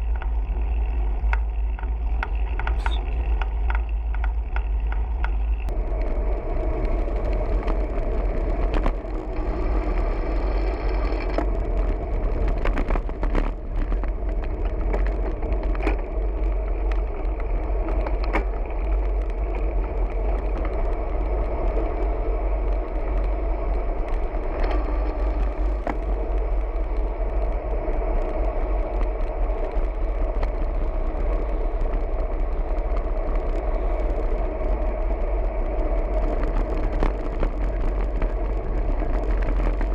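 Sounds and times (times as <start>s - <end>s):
bicycle road noise: 0.0s - 39.9s
wind rumble: 0.0s - 39.9s.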